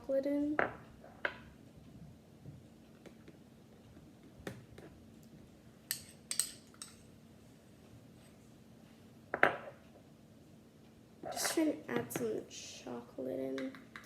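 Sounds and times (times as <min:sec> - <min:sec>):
metal spoon clinking against bowl: 0:05.9 - 0:07.0.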